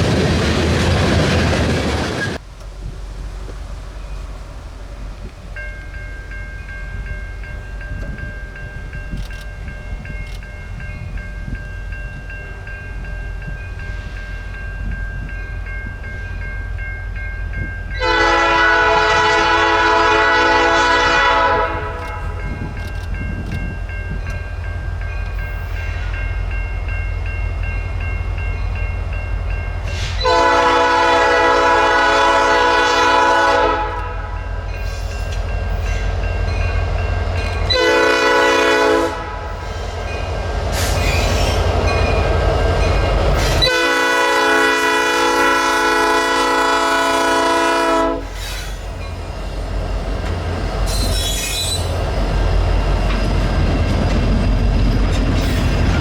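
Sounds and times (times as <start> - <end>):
train rumble: 0.0 - 56.0
locomotive air horn blasts: 18.0 - 22.6, 29.9 - 34.4, 37.7 - 39.6, 43.5 - 48.4.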